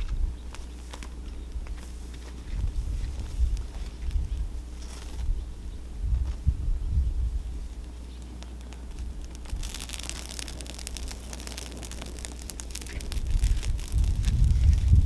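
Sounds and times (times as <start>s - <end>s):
wind on microphone: 2.4s - 7.7s, 12.3s - 15.0s
campfire crackling and popping: 7.8s - 15.0s.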